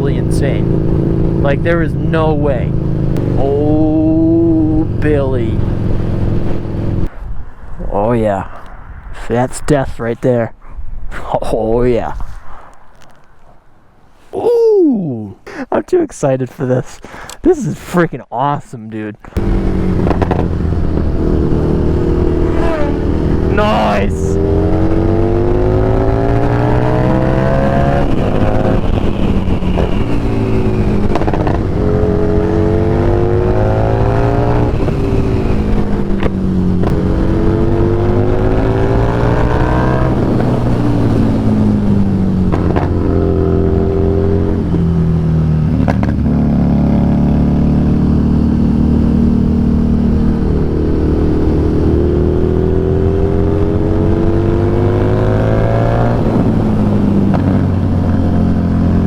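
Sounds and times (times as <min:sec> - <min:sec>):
motorcycle engine accelerating: 0:00.0 - 0:07.1, 0:19.4 - 0:59.0.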